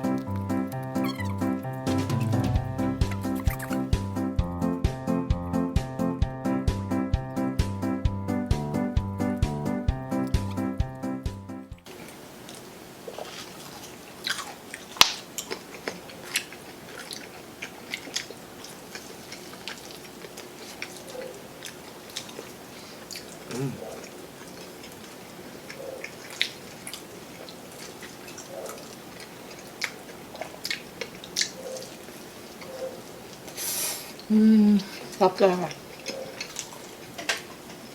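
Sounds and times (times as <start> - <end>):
chewing and biting: 2.0 - 4.1, 11.9 - 33.6, 34.9 - 37.9
mouth clicks and smacks: 3.0 - 4.1.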